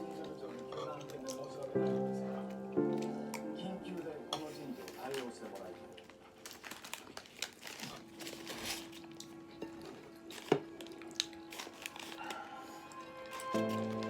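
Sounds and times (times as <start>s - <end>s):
quiet background music: 0.0s - 14.0s
chewing fried chicken: 0.1s - 14.0s.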